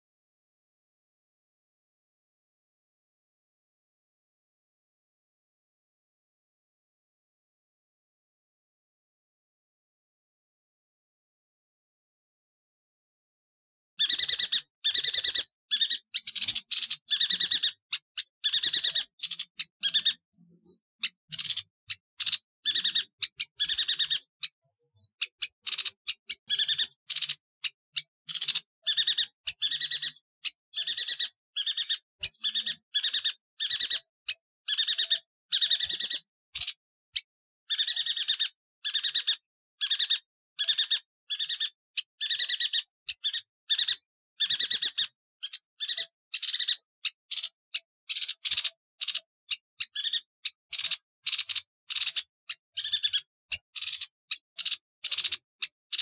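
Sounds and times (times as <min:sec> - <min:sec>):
bird buzzy rattling calls: 0:14.0 - 0:36.8, 0:37.7 - 0:56.0.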